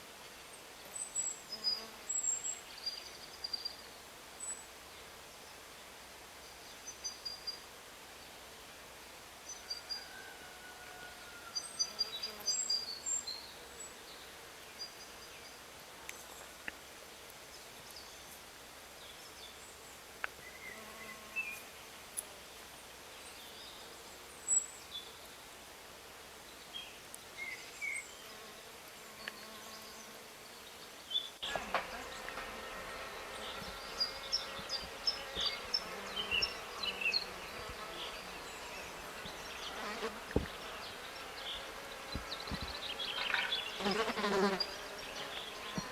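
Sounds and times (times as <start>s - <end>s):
insects buzzing: 27.5s - 45.9s.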